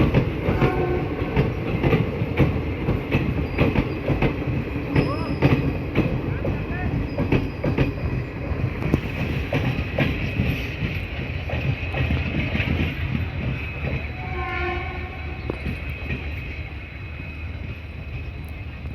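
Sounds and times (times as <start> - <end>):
wheels clicking over rail joints: 0.0 - 14.8
train rumbling: 0.0 - 18.9
train horn blast: 0.4 - 1.6, 14.1 - 15.7.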